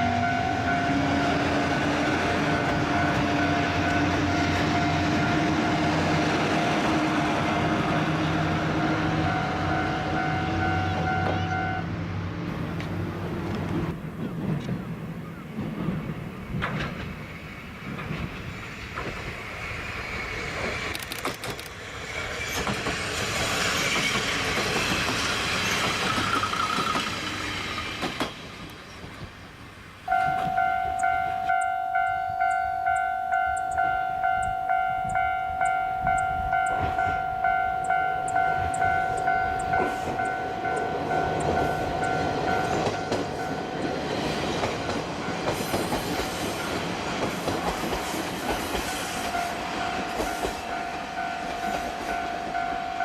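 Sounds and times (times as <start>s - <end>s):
pulsing ringing warning tone: 0.0s - 4.1s, 8.8s - 11.9s, 30.1s - 44.0s, 48.9s - 53.0s
diesel railcar rumbling: 0.0s - 53.0s.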